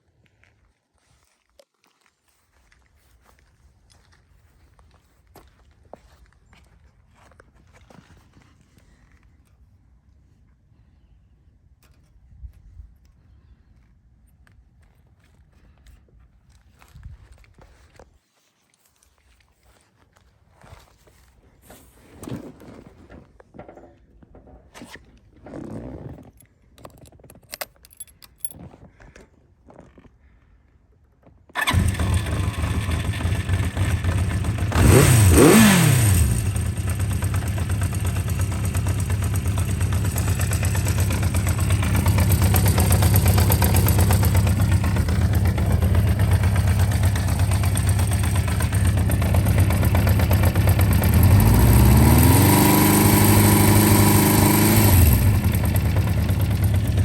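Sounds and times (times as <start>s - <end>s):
motorcycle engine starting and idling: 31.5s - 57.0s
engine revving: 31.6s - 37.4s, 39.6s - 57.0s.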